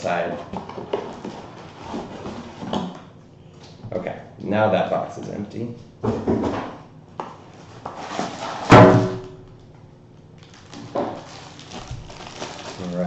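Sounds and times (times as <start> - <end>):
loud hollow knock: 8.7 - 9.4.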